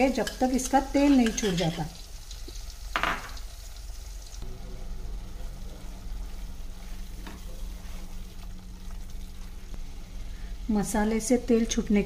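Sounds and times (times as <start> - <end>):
paste sizzling in hot oil: 0.0 - 4.4
spatula scraping: 0.2 - 1.9.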